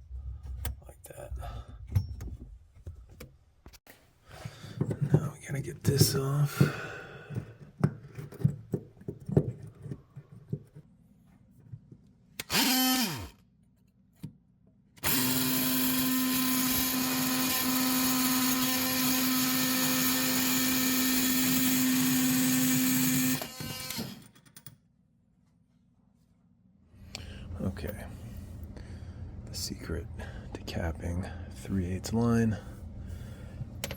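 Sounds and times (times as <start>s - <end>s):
electric power tool running: 12.4s - 13.4s, 15.0s - 24.3s.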